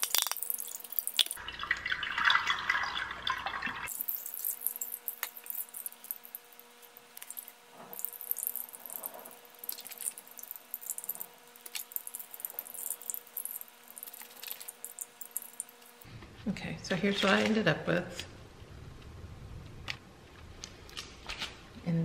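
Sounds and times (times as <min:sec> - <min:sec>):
water dripping into bowl: 0:00.0 - 0:06.3, 0:07.2 - 0:16.0.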